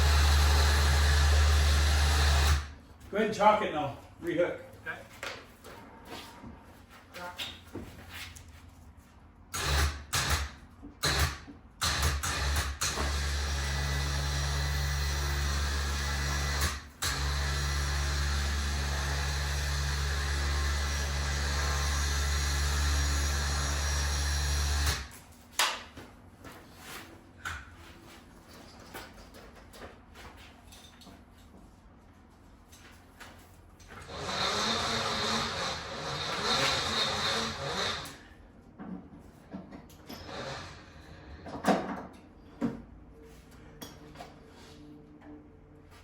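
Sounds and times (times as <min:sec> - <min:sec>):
electric winch motor running: 0:00.0 - 0:02.8, 0:11.0 - 0:25.1, 0:34.0 - 0:38.3, 0:40.2 - 0:41.4.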